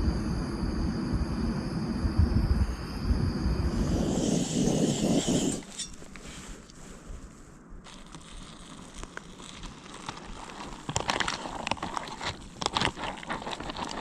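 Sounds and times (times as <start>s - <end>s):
food pouch crinkling: 7.9s - 14.0s.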